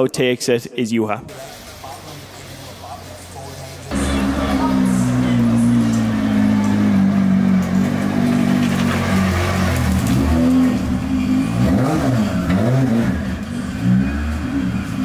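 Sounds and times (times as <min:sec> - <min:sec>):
turbocharged car engine revving: 0:03.9 - 0:15.0.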